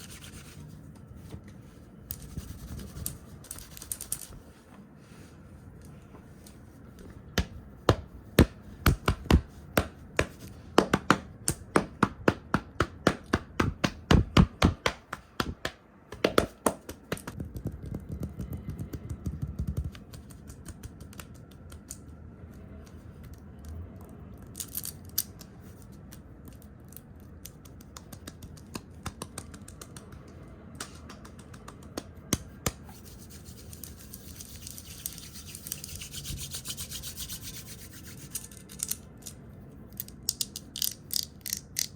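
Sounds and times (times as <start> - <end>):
scratchy rubbing: 32.9 - 38.6.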